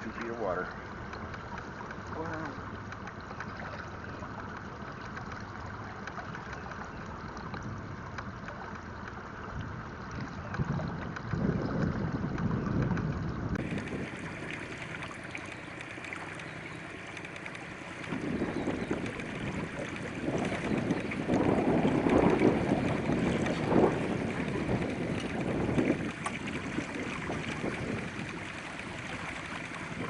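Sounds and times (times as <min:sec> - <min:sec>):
water washing: 0:00.0 - 0:30.0
wind buffeting microphone: 0:09.5 - 0:30.0.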